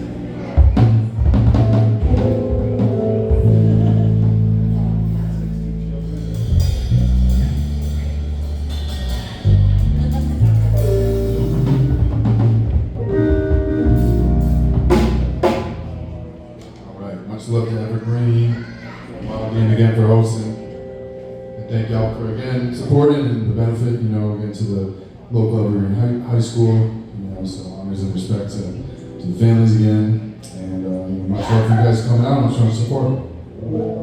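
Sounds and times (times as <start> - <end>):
drum kit: 0.6 - 16.5
deep bass notes: 0.6 - 16.6.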